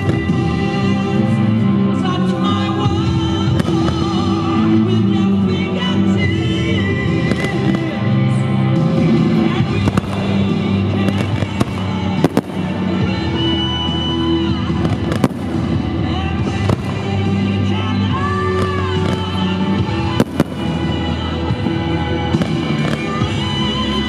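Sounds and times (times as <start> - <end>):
music: 0.0 - 24.0
fireworks bangs: 3.3 - 4.5, 7.1 - 8.2, 8.8 - 24.0.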